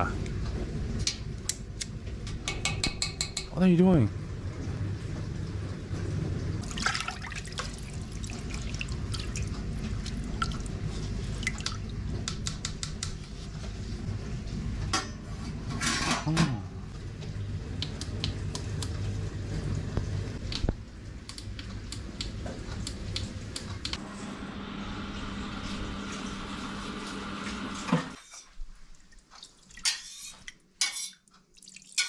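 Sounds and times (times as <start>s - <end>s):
person speaking: 3.5s - 4.1s
liquid pouring and dripping: 6.6s - 12.0s, 31.3s - 32.0s
dishes clinking: 29.8s - 31.2s.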